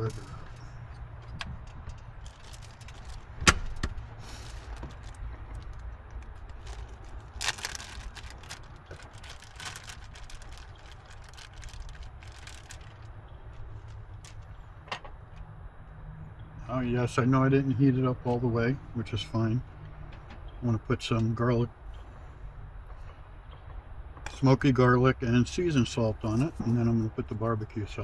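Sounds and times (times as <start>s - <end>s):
wrapper rustling and clicking: 0.0s - 14.6s
steady low hum: 0.0s - 14.9s.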